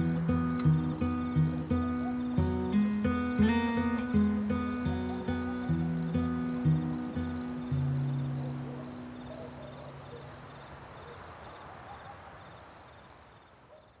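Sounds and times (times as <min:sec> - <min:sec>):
soft background music: 0:00.0 - 0:09.7
crickets chirping: 0:00.0 - 0:14.0.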